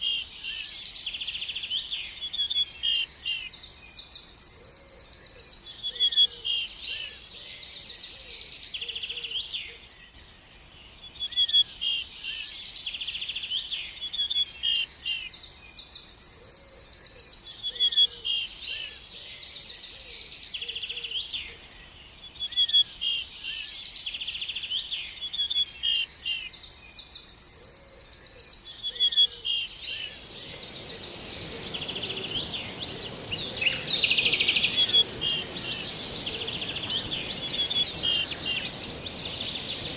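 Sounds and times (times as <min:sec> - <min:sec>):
bird singing trills and chirps: 0:29.7 - 0:39.9
steady high hiss: 0:29.8 - 0:39.9.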